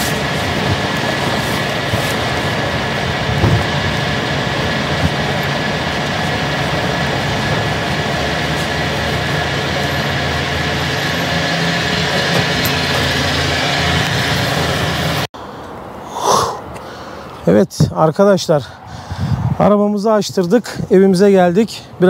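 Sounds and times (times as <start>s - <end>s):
vehicle engine running: 0.0s - 15.3s.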